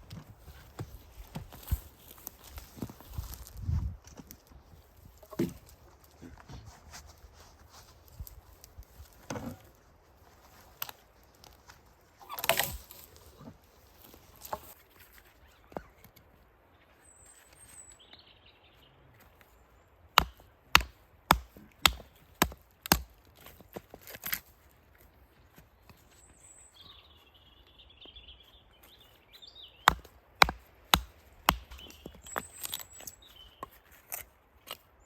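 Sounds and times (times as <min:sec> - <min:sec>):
axe chopping wood: 0:20.2 - 0:23.2, 0:29.8 - 0:32.8
birds chirping and warbling: 0:25.8 - 0:29.9, 0:31.6 - 0:33.9.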